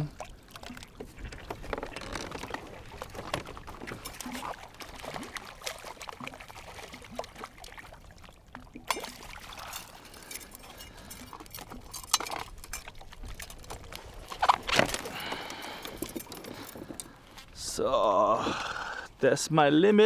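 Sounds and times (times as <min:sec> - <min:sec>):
water splashing and dripping: 0:00.0 - 0:17.8
fishing tackle clicking: 0:08.9 - 0:17.5.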